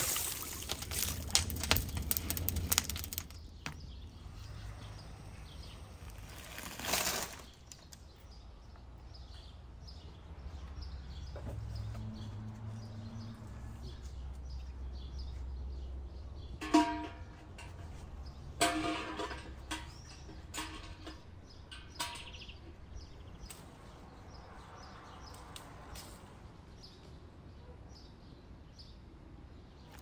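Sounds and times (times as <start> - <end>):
crackling: 0.0 - 3.8, 5.2 - 8.0
low outdoor rumble: 0.0 - 6.8
small birds chirping: 0.2 - 16.6.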